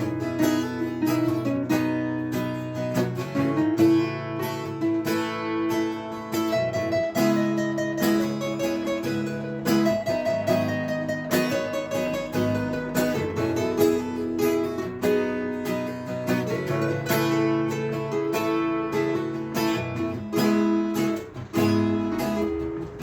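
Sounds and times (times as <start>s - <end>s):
acoustic guitar strumming: 0.0s - 23.0s.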